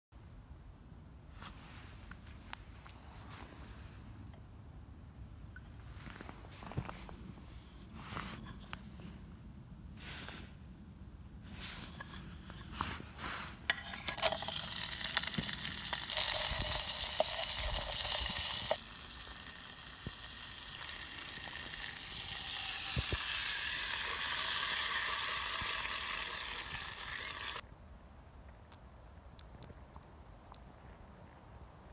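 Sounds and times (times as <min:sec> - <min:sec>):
sausage sizzling in a pot: 0:13.7 - 0:27.6.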